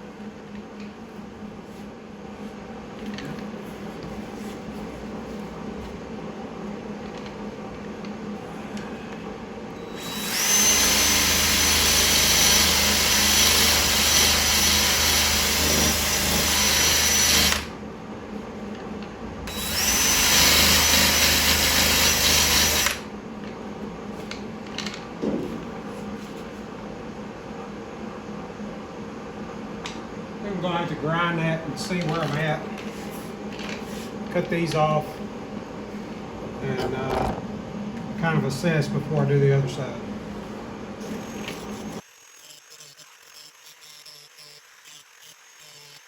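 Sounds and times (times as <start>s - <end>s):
power grinder grinding metal: 42.0s - 46.0s.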